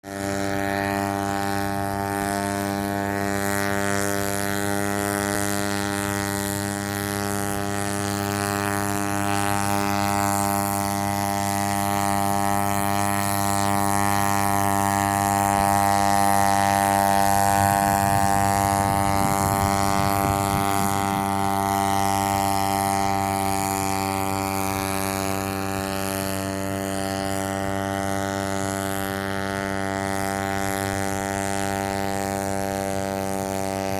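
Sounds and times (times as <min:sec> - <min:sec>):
paramotor engine running: 0:00.0 - 0:33.9.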